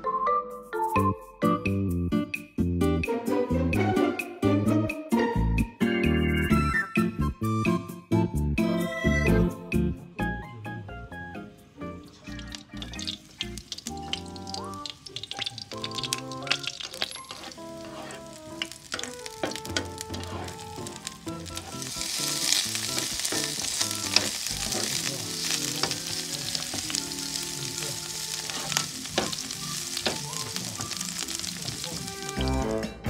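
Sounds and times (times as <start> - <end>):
garlic and onion sizzling in oil: 12.0 - 32.7
metal utensil clicking on pan: 12.3 - 20.6, 21.5 - 27.4, 28.2 - 30.2.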